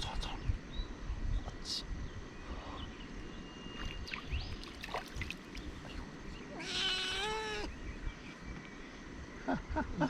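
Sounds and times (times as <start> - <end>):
water splashing and sloshing: 3.8 - 6.2.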